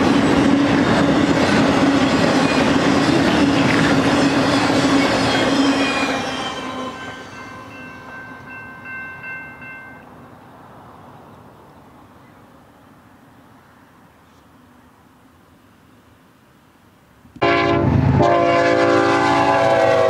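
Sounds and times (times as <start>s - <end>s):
freight train rumble and clatter: 0.0s - 12.6s
distant locomotive air horn: 17.4s - 20.0s.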